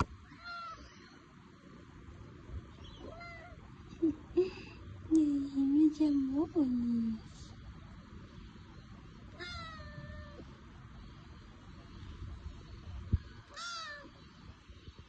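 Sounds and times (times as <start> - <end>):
kitten meowing: 9.3 - 10.4, 13.5 - 14.1.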